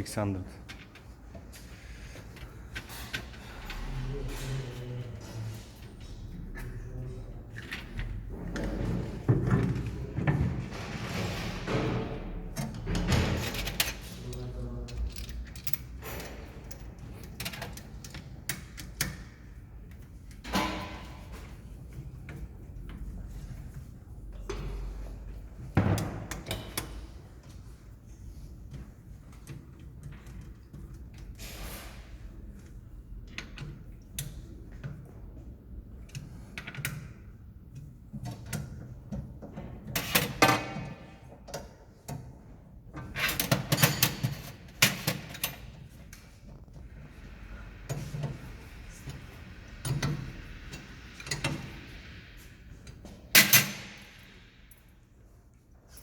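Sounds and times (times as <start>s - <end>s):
tools and metal parts clattering: 2.2s - 5.6s, 7.5s - 19.4s, 36.0s - 42.3s, 42.9s - 46.7s, 52.8s - 55.0s.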